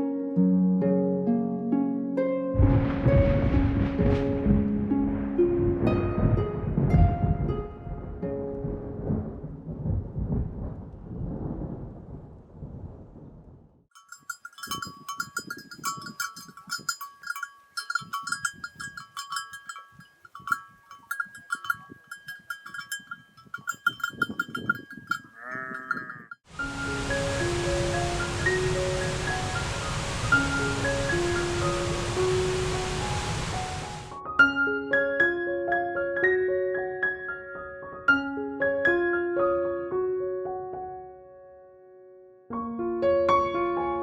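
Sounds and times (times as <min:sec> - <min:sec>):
soft instrumental music: 0:00.0 - 0:09.1, 0:26.6 - 0:44.0
neck bells clinking: 0:13.9 - 0:26.5
sheep bleating: 0:25.4 - 0:26.4.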